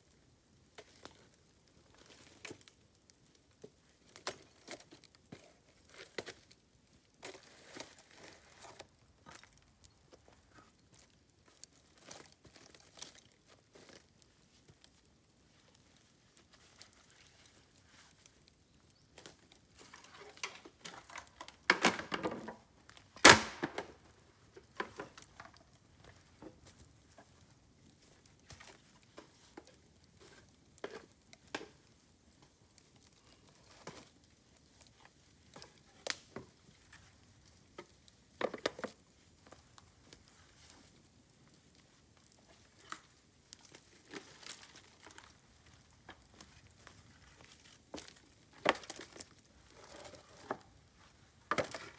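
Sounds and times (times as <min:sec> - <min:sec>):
bamboo fire crackling: 0:00.0 - 0:51.9
fire popping loudly: 0:18.6 - 0:25.9.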